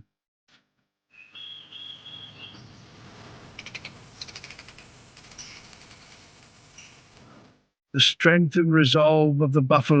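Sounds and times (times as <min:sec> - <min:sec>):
low steady outdoor background: 0:01.0 - 0:10.0
high whistling call: 0:01.2 - 0:02.7
rapid high clicking: 0:03.6 - 0:07.3.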